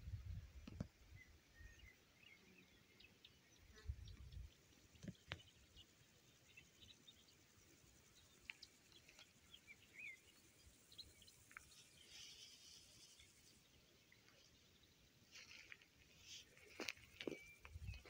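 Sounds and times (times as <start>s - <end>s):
faint bird chirps: 1.0s - 18.0s
high rustling hiss: 6.8s - 14.5s.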